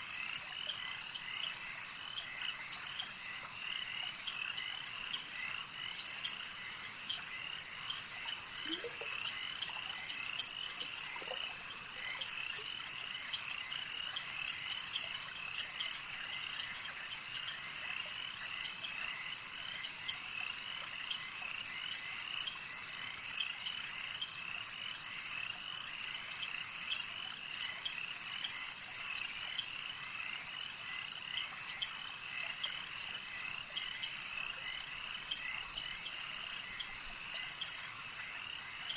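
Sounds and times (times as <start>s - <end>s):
frogs chirping: 0.0s - 38.9s
low rising frog calls: 8.1s - 12.8s.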